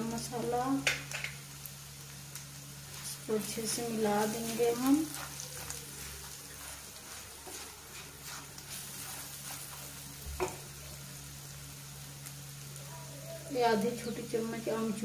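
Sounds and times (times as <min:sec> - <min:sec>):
steady low hum: 0:00.0 - 0:15.0
paste sizzling in oil: 0:00.1 - 0:14.3
spatula stirring and scraping: 0:04.4 - 0:10.0.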